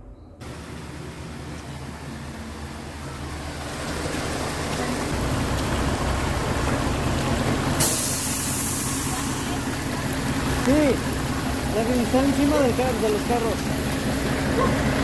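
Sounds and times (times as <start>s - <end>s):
car engine and road noise: 0.0s - 15.0s
sudden hissing: 7.8s - 9.6s.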